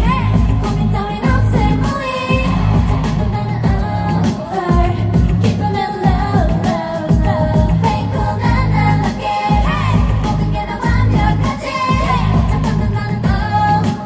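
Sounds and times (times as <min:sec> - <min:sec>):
heavy bass beat: 0:00.0 - 0:14.0
pop song with female vocals: 0:00.0 - 0:14.0.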